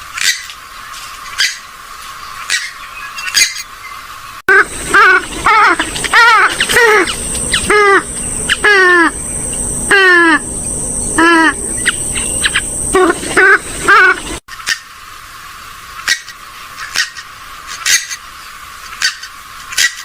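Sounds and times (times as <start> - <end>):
harsh nasal bird calls: 1.3 - 15.0.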